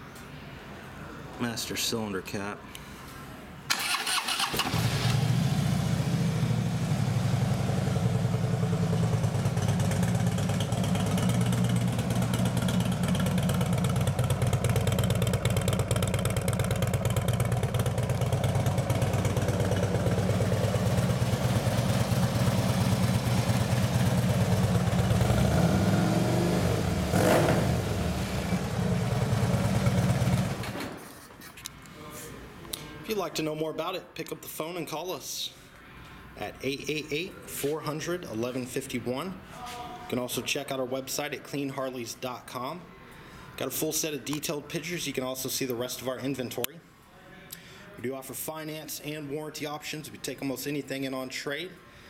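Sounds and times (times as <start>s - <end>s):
motorcycle engine cranking: 3.7s - 5.4s, 9.3s - 22.5s
motorcycle engine idling: 5.2s - 30.6s.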